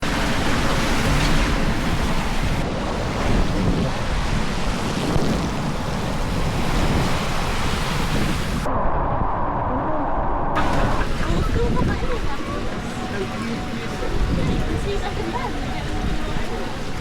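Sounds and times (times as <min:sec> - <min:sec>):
water rushing: 0:00.0 - 0:08.7, 0:10.6 - 0:17.0
wind buffeting microphone: 0:00.0 - 0:17.0.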